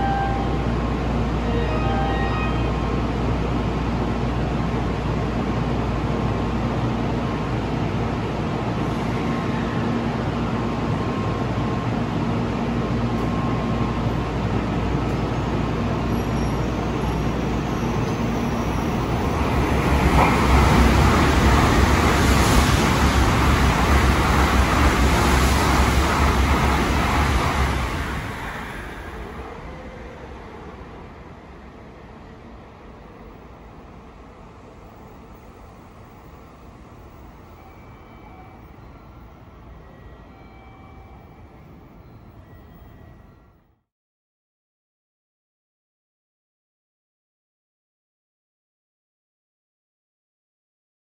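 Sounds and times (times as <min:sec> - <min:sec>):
train humming: 0:00.0 - 0:43.3
train cars rushing past: 0:00.0 - 0:43.6.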